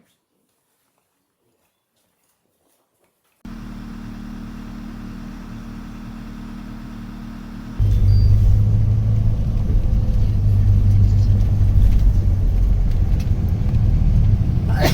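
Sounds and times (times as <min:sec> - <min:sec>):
moving vehicle rumble: 0:03.5 - 0:14.9.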